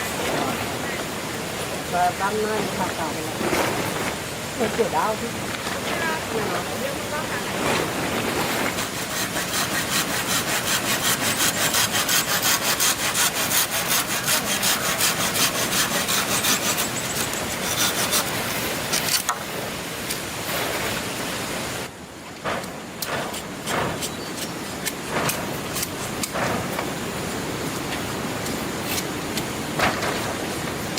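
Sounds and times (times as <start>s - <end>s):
hand saw cutting wood: 6.4s - 19.3s, 23.0s - 26.6s.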